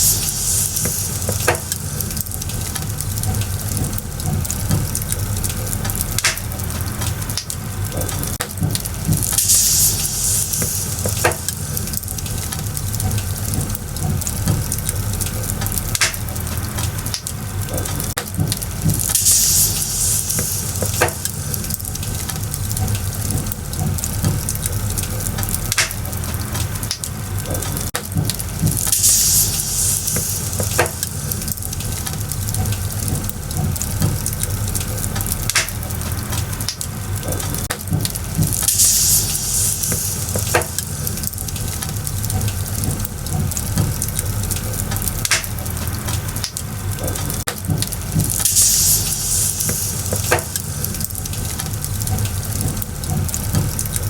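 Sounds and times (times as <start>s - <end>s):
high hiss: 0.0s - 2.2s, 9.3s - 12.0s, 19.0s - 21.9s, 28.8s - 31.5s, 38.5s - 41.2s, 48.4s - 51.0s
firewood crackling: 0.0s - 54.0s.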